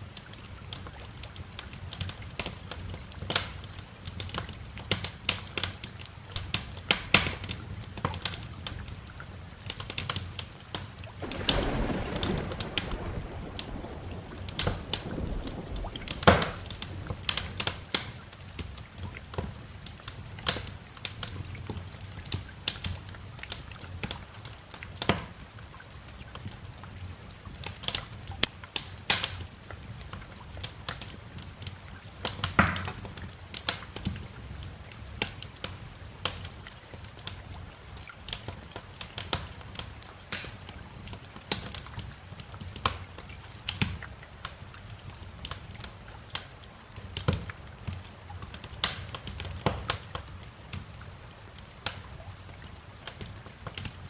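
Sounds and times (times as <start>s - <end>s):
wood fire crackling: 0.2s - 25.3s, 32.2s - 54.0s
low rumble: 11.2s - 18.0s.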